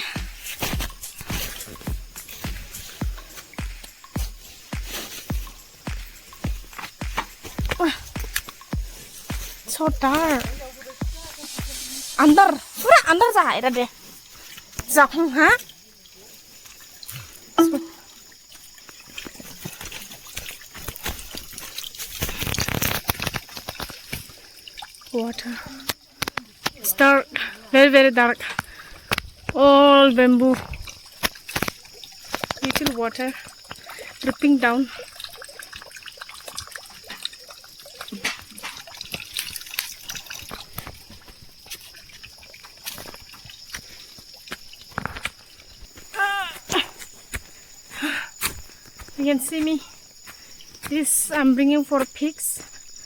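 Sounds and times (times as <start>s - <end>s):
footsteps: 0.0s - 14.7s
water dripping and trickling: 0.0s - 53.0s
taps and clicks: 0.2s - 11.8s
brushing through bamboo and leaves: 0.3s - 14.7s.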